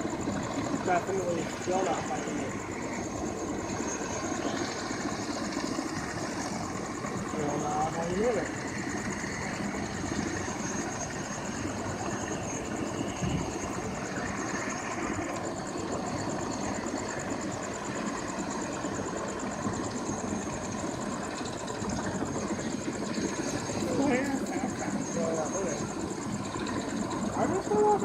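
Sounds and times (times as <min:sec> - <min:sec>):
helicopter engine drone: 0:00.0 - 0:28.0.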